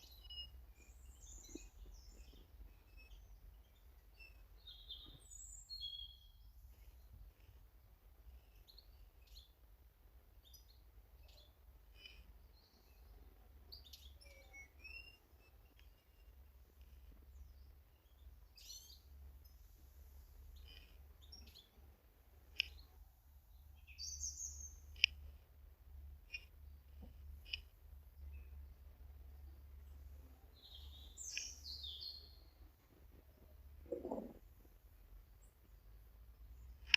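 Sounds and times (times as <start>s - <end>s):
small birds chirping: 0.0s - 36.9s.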